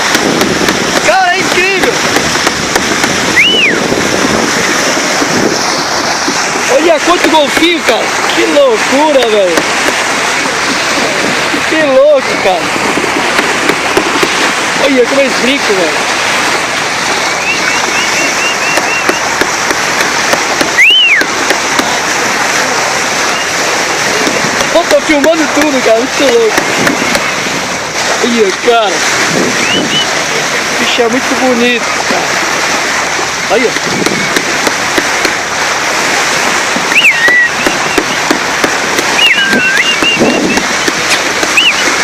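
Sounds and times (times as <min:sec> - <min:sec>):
water rushing: 0:00.0 - 0:42.0
wind noise: 0:00.0 - 0:42.0
high whistle: 0:03.3 - 0:03.9, 0:17.2 - 0:19.3, 0:20.8 - 0:21.3, 0:23.2 - 0:23.6, 0:29.6 - 0:30.2, 0:36.9 - 0:38.2, 0:39.1 - 0:40.8, 0:41.5 - 0:42.0.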